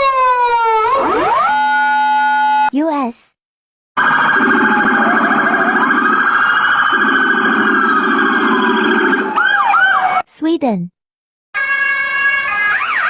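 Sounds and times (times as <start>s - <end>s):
police car siren: 0.0s - 2.7s, 4.0s - 10.2s, 11.6s - 13.0s.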